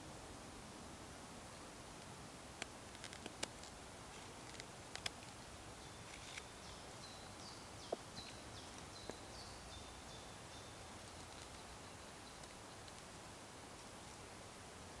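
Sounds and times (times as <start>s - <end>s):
background hiss: 0.0s - 15.0s
bird singing faintly: 5.7s - 13.1s.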